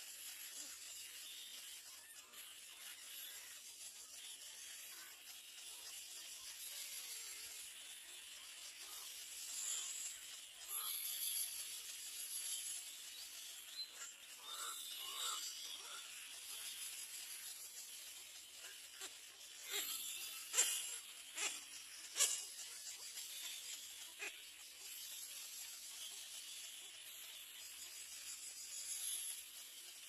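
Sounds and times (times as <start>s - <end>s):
steady high hiss: 0.0s - 30.0s.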